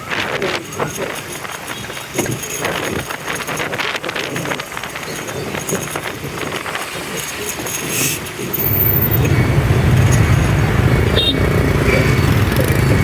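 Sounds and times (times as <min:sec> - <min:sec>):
vehicle engine low rumble: 0:08.3 - 0:13.0.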